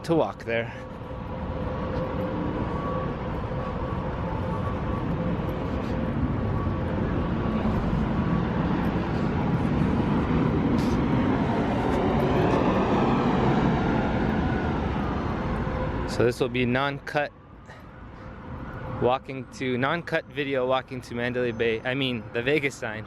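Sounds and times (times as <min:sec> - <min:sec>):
road traffic noise: 0:00.0 - 0:23.0
vehicle passing by: 0:00.8 - 0:16.4.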